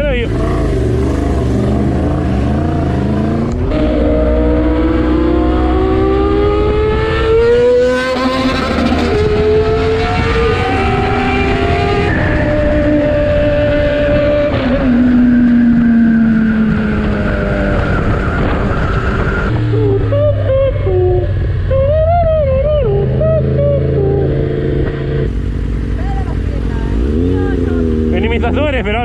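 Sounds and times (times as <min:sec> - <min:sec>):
motorcycle engine accelerating: 0:00.0 - 0:29.0
wind rush: 0:05.8 - 0:19.6.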